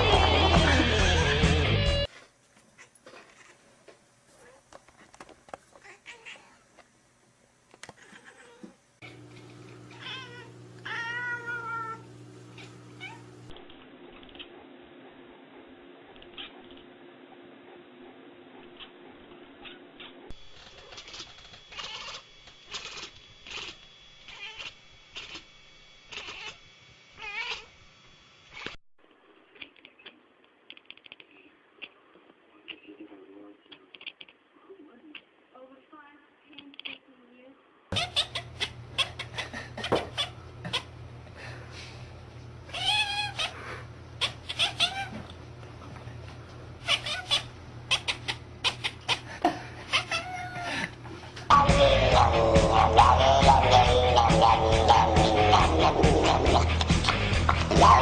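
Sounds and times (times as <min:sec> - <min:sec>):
cat meowing: 0:08.0 - 0:09.2, 0:09.9 - 0:12.0, 0:12.6 - 0:13.3, 0:24.3 - 0:25.4, 0:27.2 - 0:27.7, 0:42.7 - 0:43.6, 0:44.2 - 0:45.2, 0:46.8 - 0:49.1, 0:49.9 - 0:50.6
steady low hum: 0:37.9 - 0:58.0.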